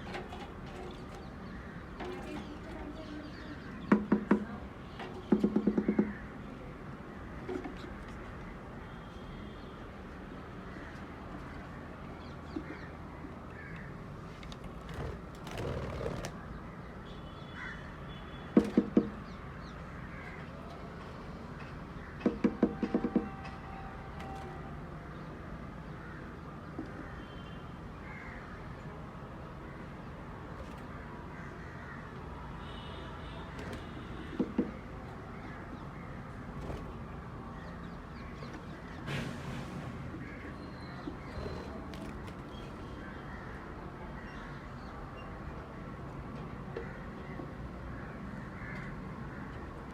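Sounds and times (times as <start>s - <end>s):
crow cawing: 17.6s - 17.9s.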